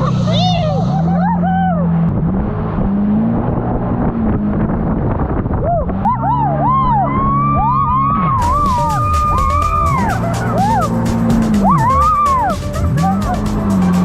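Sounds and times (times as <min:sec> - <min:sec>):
jet ski engine running: 0:08.3 - 0:14.0.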